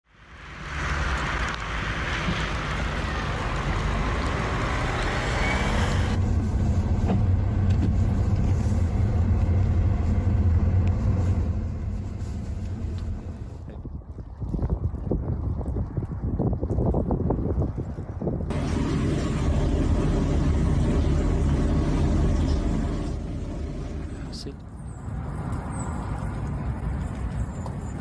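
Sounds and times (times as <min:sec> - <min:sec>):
low engine hum: 0:00.2 - 0:14.4, 0:18.4 - 0:28.0.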